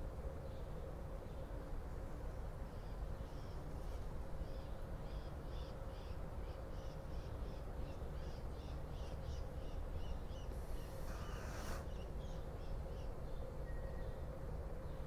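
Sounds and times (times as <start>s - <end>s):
steady low hum: 0.0s - 15.0s
brief hiss: 10.5s - 11.9s.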